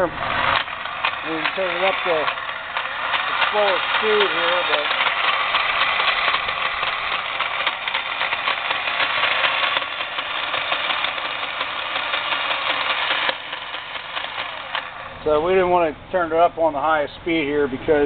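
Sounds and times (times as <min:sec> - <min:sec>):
drill press grinding rattle: 0:00.0 - 0:17.0.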